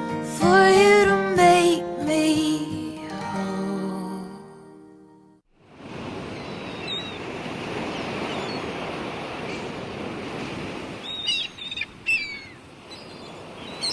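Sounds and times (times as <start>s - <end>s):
sea surf washing: 5.6s - 13.9s
gulls calling: 6.0s - 13.9s.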